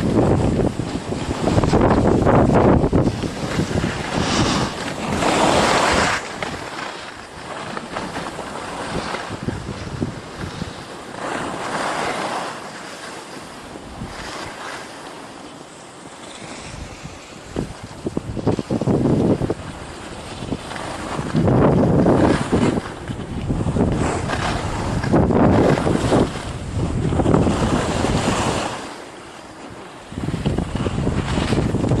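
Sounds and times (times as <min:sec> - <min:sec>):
wind rushing over microphone: 0:00.0 - 0:12.4, 0:13.7 - 0:14.8, 0:16.4 - 0:29.0, 0:29.7 - 0:32.0.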